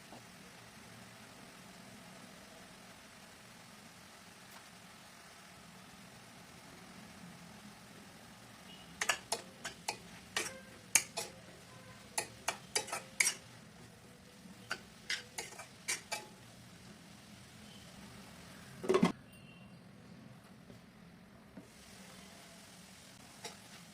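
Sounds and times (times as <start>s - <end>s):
utensils clinking against dishes: 9.0s - 11.4s, 12.2s - 13.5s, 14.7s - 16.4s.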